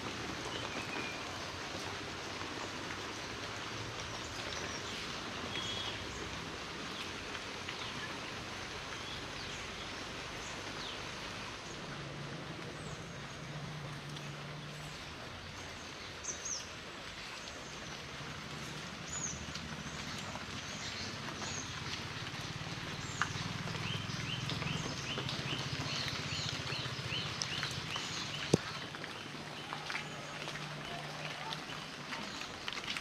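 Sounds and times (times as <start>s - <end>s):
heavy rain falling: 0.0s - 33.0s
birds chirping: 12.7s - 33.0s.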